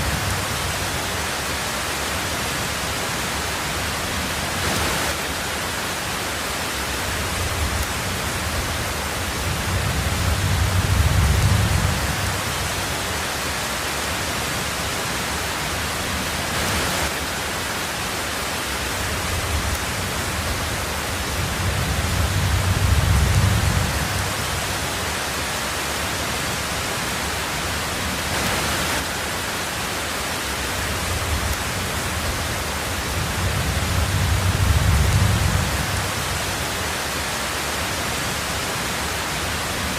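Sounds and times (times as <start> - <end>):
heavy rain on a tin roof: 0.0 - 39.9
low thunder rumbles: 7.2 - 12.9, 19.2 - 24.8, 31.0 - 36.6.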